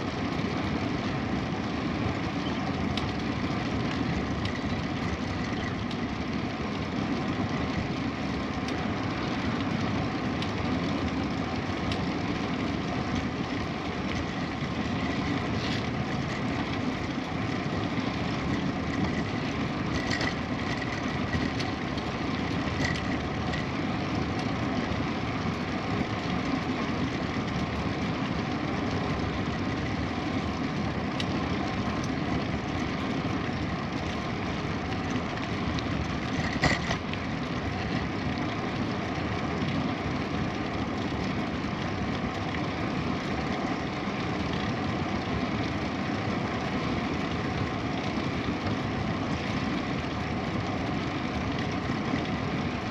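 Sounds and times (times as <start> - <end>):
bicycle rolling: 0.0 - 52.9
faint ticks: 2.2 - 6.1, 9.5 - 12.1, 31.1 - 33.4.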